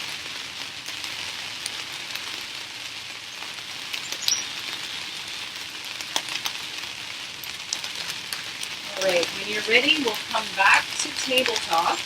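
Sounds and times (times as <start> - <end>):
raindrop ticks: 0.0 - 2.5, 3.3 - 12.0
steady rain hissing: 0.0 - 12.0.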